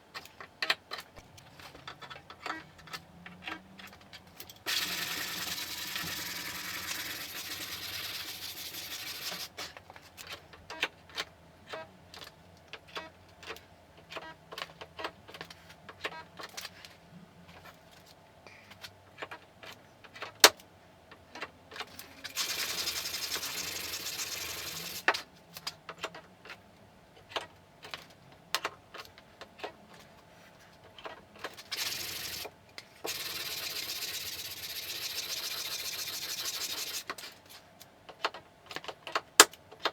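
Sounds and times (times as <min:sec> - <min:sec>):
sanding on steel panel: 0:04.7 - 0:09.6, 0:22.4 - 0:25.0, 0:33.1 - 0:37.1.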